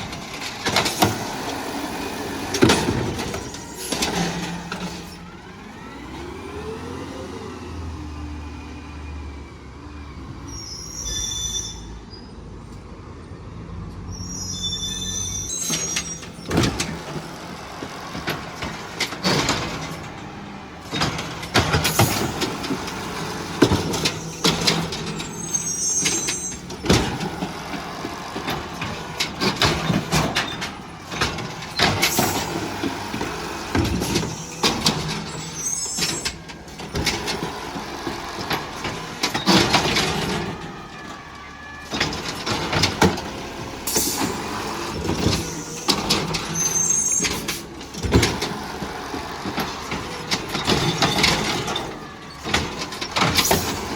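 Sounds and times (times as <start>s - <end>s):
bins clanking and banging: 0.0s - 5.6s, 15.5s - 53.9s
garbage truck engine running: 0.0s - 11.1s, 14.3s - 53.9s
short high squeal: 10.4s - 12.4s, 14.1s - 16.5s, 25.2s - 26.6s, 35.3s - 36.4s, 46.5s - 47.4s.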